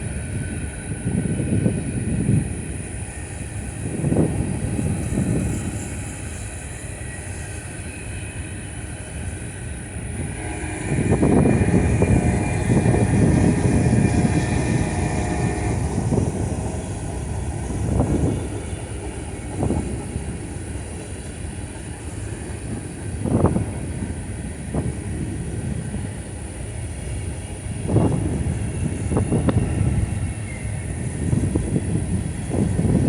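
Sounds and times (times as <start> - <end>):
train knocks: 0.0 - 33.0
train wheels rumbling on track: 0.0 - 33.0
faint whine: 2.6 - 22.8.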